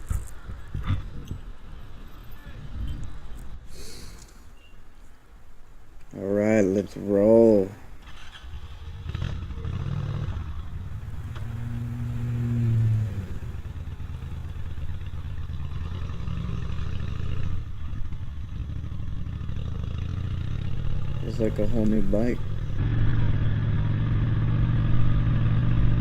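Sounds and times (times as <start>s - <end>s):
low rumble of riding: 0.0s - 26.0s
vehicle engine rising in pitch: 8.9s - 26.0s.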